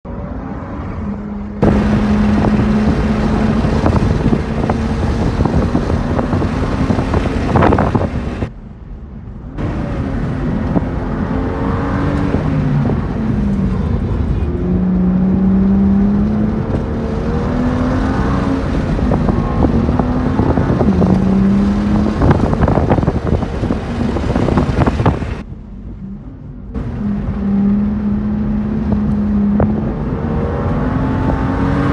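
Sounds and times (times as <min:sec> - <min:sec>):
race car engine revving through gears: 0:00.1 - 0:08.5, 0:09.6 - 0:25.4, 0:26.8 - 0:31.9
wind noise rushing: 0:01.6 - 0:08.6, 0:09.6 - 0:25.4.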